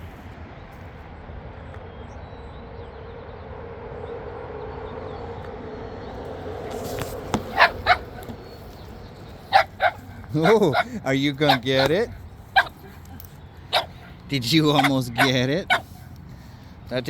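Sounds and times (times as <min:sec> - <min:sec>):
low background rumble: 0:00.0 - 0:16.9
dog barking: 0:07.4 - 0:08.6, 0:09.4 - 0:16.1.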